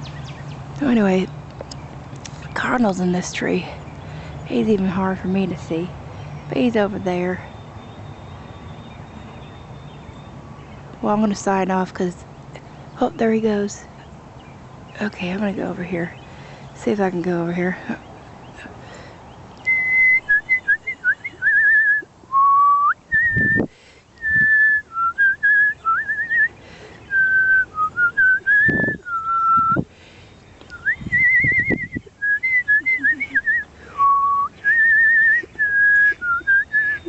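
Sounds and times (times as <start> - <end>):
person whistling bird calls: 19.6 - 29.8, 30.7 - 37.0.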